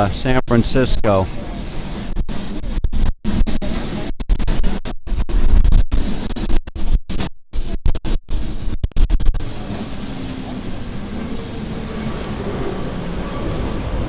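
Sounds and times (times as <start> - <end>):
electric tram rumbling: 9.4 - 14.0.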